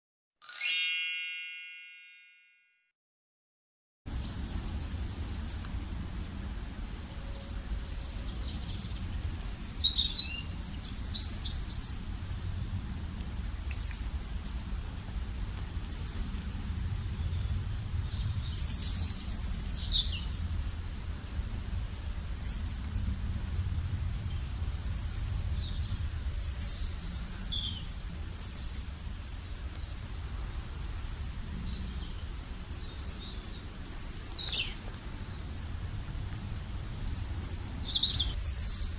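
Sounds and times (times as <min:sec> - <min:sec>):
steady low rumble: 0:12.0 - 0:28.4, 0:35.0 - 0:38.6
small birds chirping: 0:15.8 - 0:20.6, 0:23.9 - 0:35.5, 0:36.6 - 0:38.9.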